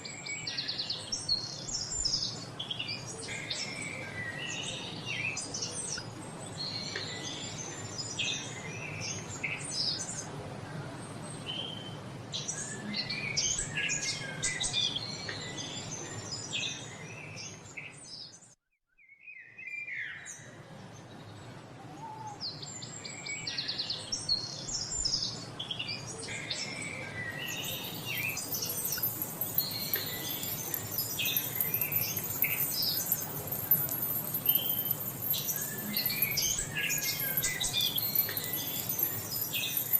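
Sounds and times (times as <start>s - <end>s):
songbirds chirping and singing: 19.9s - 39.9s
high shrill shimmering sound: 27.4s - 39.9s.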